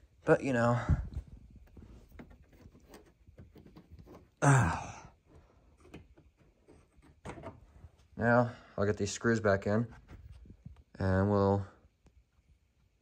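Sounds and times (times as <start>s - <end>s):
man sighing loudly: 4.4s - 5.2s.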